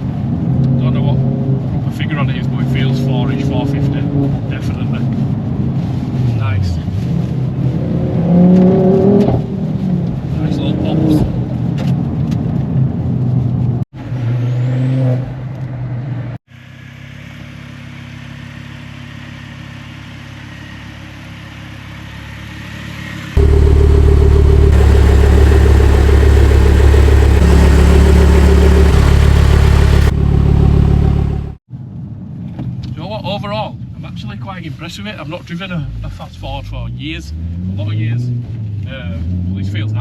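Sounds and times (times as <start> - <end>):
car engine and exhaust: 0.0 - 32.9, 33.8 - 40.0.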